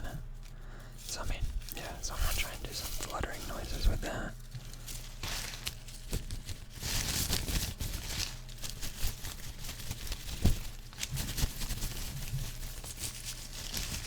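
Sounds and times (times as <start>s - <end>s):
cloth fluttering and rustling: 0.0s - 14.0s.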